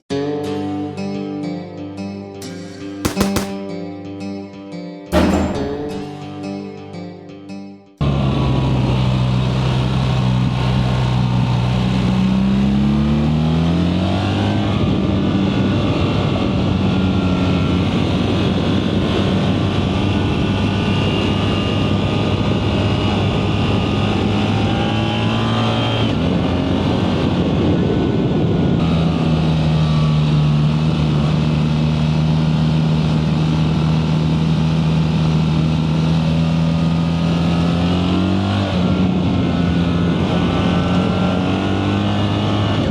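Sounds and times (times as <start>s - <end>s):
motorcycle engine at speed: 8.4s - 27.4s, 28.8s - 42.9s.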